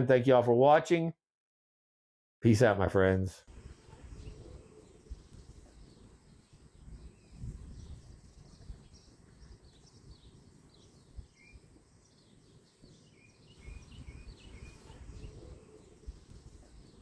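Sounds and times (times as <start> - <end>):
birds chirping faintly: 3.4 - 17.0.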